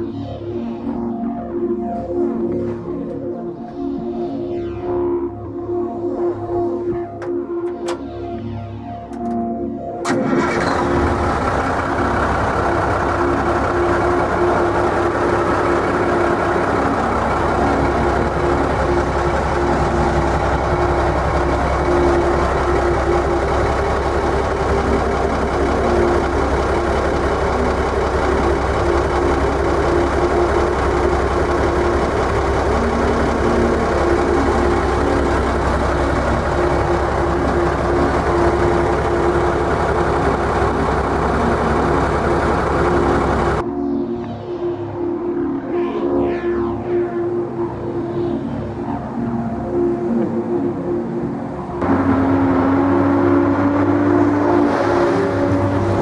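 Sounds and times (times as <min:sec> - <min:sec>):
diesel truck engine idling: 0:10.1 - 0:43.6, 0:52.7 - 0:56.0.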